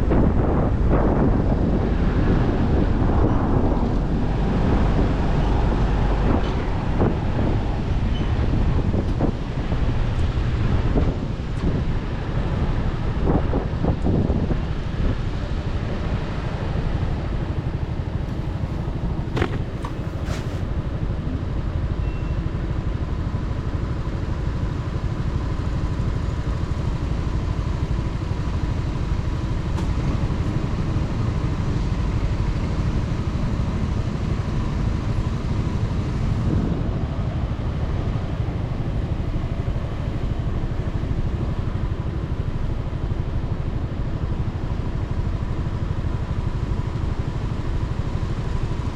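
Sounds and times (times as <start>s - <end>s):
motorcycle engine and road noise: 0.0s - 48.9s
wind rush on microphone: 0.0s - 48.9s.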